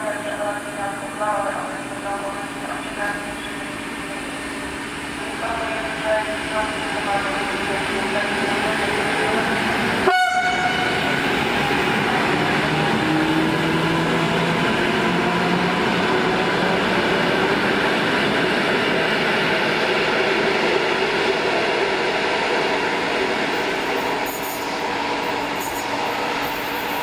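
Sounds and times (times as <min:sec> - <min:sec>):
faint train whine: 0:00.0 - 0:16.7
train wheels rumbling on rails: 0:00.0 - 0:27.0.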